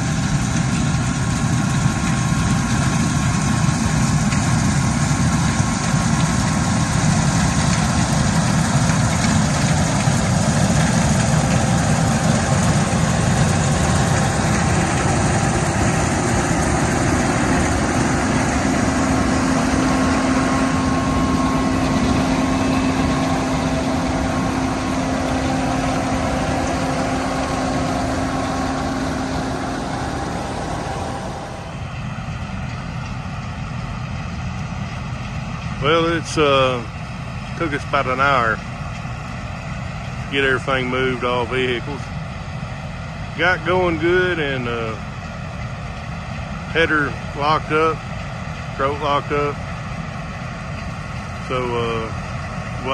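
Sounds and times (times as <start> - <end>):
farm machinery engine running: 0.0 - 52.9
steady hum: 5.8 - 32.0.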